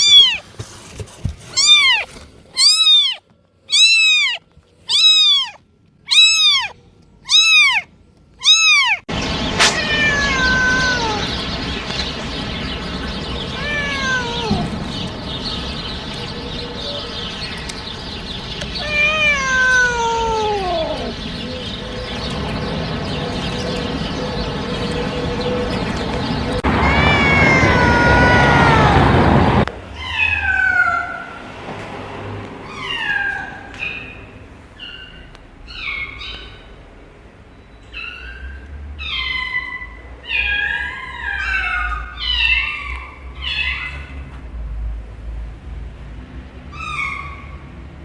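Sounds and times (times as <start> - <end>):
cats meowing: 0.0 - 0.5, 1.5 - 31.3, 32.6 - 34.0, 39.0 - 44.3.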